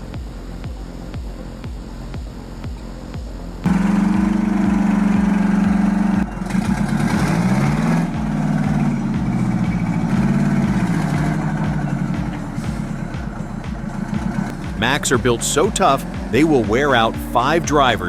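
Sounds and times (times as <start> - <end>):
steady low beat: 0.0 - 18.0
truck engine revving: 3.6 - 18.0.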